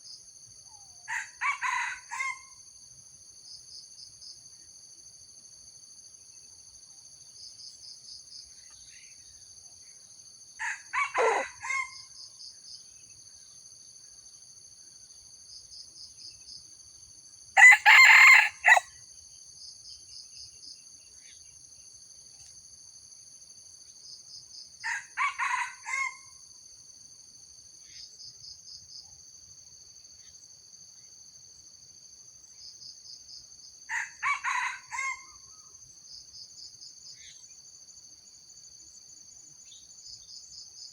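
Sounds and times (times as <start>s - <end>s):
rooster crowing: 1.1s - 2.4s, 10.6s - 12.0s, 17.6s - 18.9s, 24.8s - 26.2s, 33.9s - 35.5s
insects chirring: 6.0s - 40.9s.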